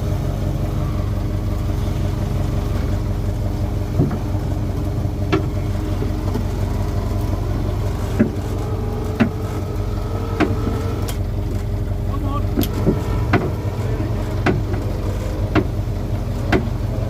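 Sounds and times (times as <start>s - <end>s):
boat engine idling: 0.0s - 17.0s
sharp knocks: 12.6s - 13.6s, 14.4s - 14.8s, 15.5s - 15.8s, 16.5s - 16.7s.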